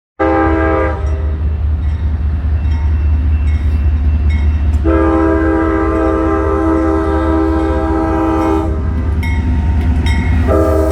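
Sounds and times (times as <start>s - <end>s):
locomotive air horn blasts: 0.2s - 1.4s, 4.8s - 8.9s, 10.4s - 10.9s.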